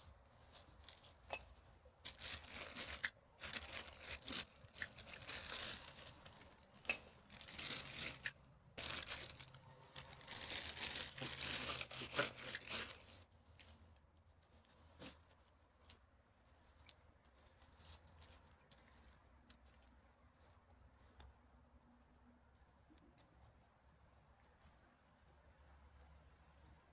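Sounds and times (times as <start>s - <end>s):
plastic bag rustling and crinkling: 0.0s - 21.2s.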